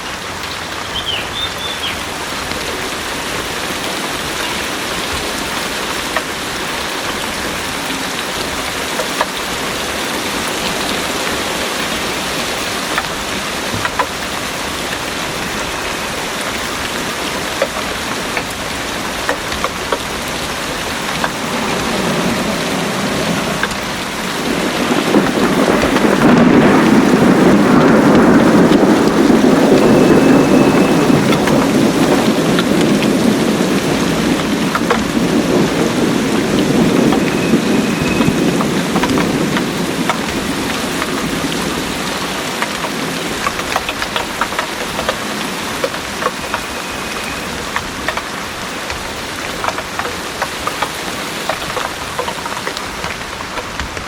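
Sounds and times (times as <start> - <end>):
close rain drop ticks: 0.0 - 54.0
heavy rain: 0.0 - 54.0
low roll of thunder: 9.6 - 43.8.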